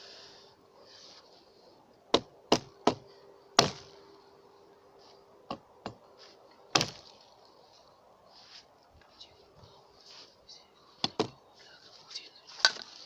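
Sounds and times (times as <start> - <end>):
sharp knocks: 11.0 - 11.4.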